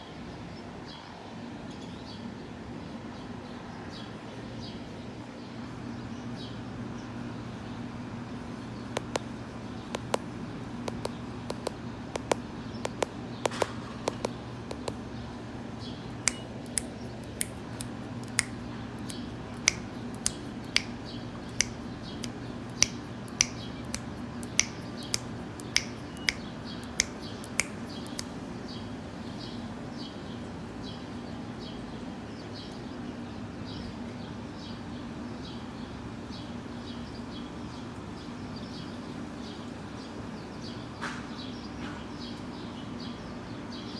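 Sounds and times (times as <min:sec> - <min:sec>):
swallows chirping: 0:08.7 - 0:15.0, 0:15.8 - 0:30.1
sharp irregular clicks: 0:09.0 - 0:09.3, 0:09.9 - 0:10.3, 0:10.9 - 0:15.0, 0:16.2 - 0:28.3.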